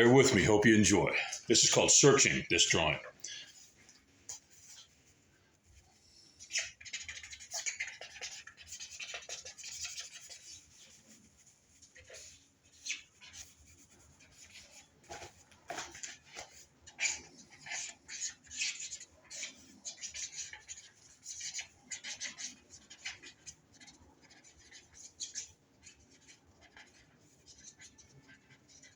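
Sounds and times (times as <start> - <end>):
pencil scratching on paper: 4.4 - 28.9.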